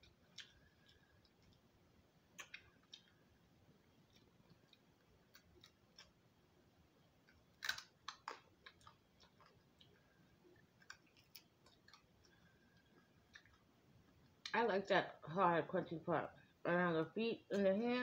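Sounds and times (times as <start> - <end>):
person chewing crunchy food: 0.0 - 1.7, 2.4 - 6.2, 7.2 - 14.5.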